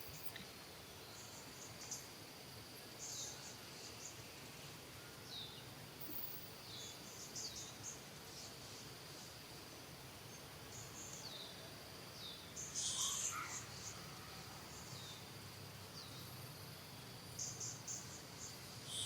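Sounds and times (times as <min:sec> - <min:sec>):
insect chirring: 0:00.0 - 0:00.4, 0:12.2 - 0:19.0.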